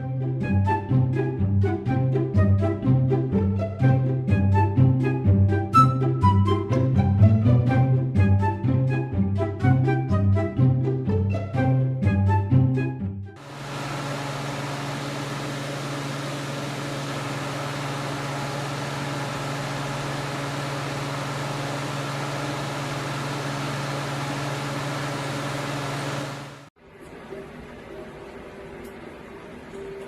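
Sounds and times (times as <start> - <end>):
small motor humming: 13.4 - 26.7.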